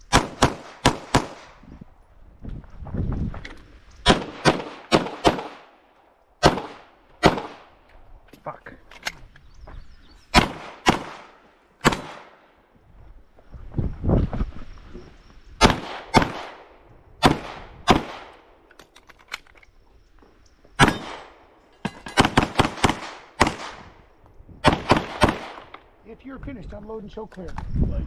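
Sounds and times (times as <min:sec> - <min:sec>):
pistol shots: 0:00.0 - 0:01.6, 0:04.0 - 0:05.8, 0:06.4 - 0:07.7, 0:10.3 - 0:12.4, 0:15.6 - 0:18.4, 0:20.8 - 0:21.4, 0:22.1 - 0:24.0, 0:24.6 - 0:25.8.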